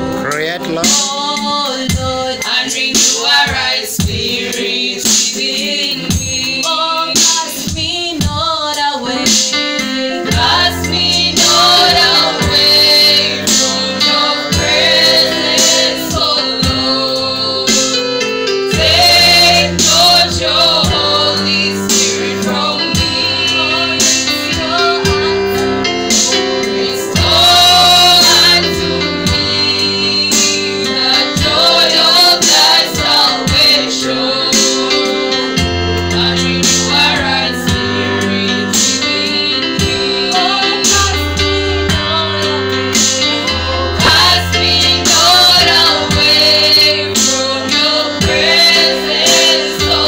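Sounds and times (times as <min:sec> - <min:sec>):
instrumental accompaniment: 0:00.0 - 0:50.0
voices singing gospel: 0:00.0 - 0:50.0.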